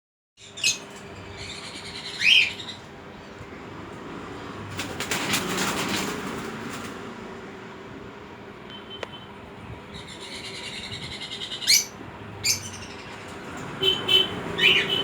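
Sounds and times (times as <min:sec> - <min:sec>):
baby bird chirp: 0:00.4 - 0:02.8, 0:09.9 - 0:13.2, 0:14.1 - 0:15.0.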